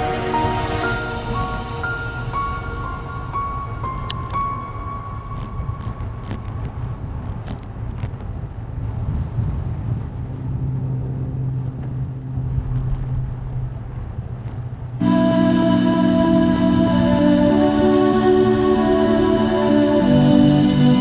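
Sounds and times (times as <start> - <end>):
bicycle road noise: 0.0 - 21.0
steady low hum: 0.0 - 21.0
wind: 0.0 - 21.0
faint clicks: 5.3 - 12.0.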